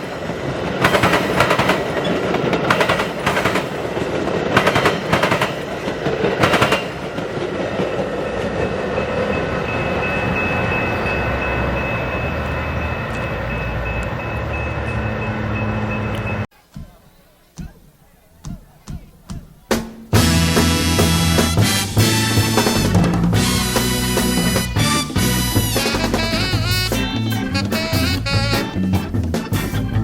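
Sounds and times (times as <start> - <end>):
train wheels clattering: 0.0 - 12.1
train rumbling: 0.0 - 17.0, 20.1 - 30.0.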